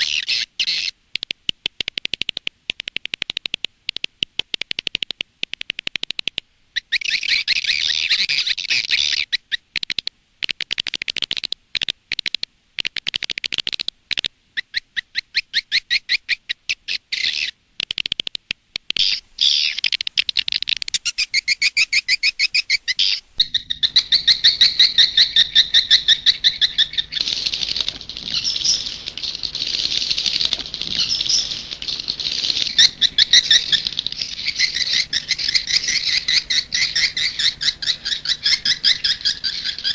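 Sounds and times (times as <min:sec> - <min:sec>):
swiftlet chirps and twitters: 0:19.0 - 0:39.9
faint low hum: 0:22.8 - 0:39.9.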